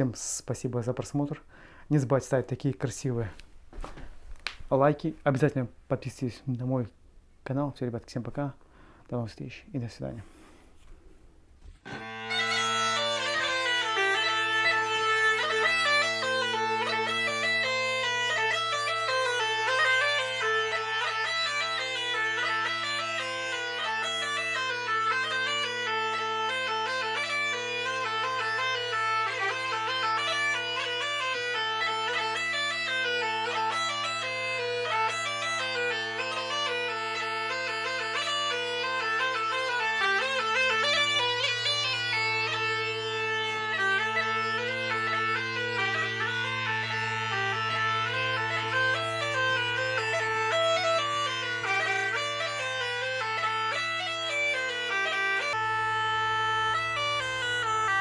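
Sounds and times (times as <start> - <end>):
bagpipe music: 11.6 - 58.0.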